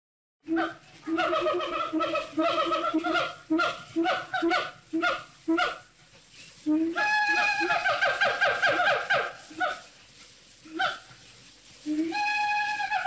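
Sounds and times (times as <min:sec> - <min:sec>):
monkey calling and chattering: 0:07.1 - 0:09.8.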